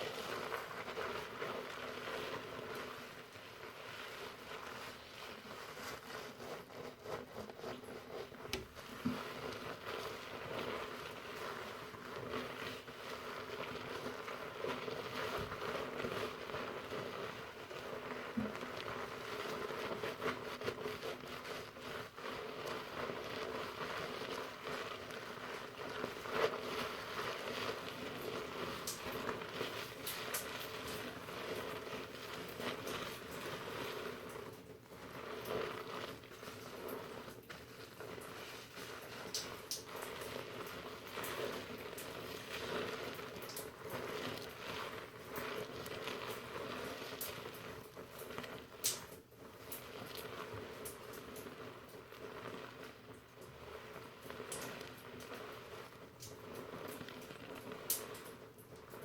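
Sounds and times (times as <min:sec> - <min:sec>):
shampoo lather rustling in hair: 0:00.0 - 0:59.0.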